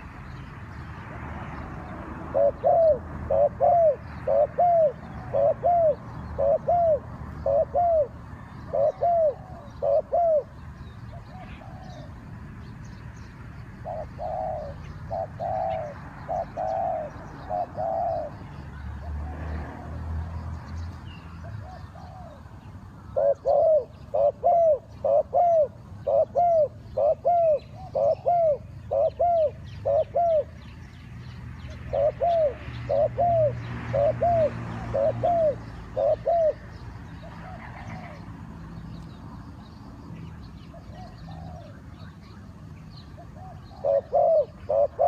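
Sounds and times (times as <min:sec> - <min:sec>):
dove cooing: 0:01.8 - 0:12.2, 0:13.8 - 0:18.4, 0:21.4 - 0:22.4, 0:23.1 - 0:30.7, 0:31.6 - 0:38.3, 0:40.7 - 0:42.0, 0:43.0 - 0:45.0.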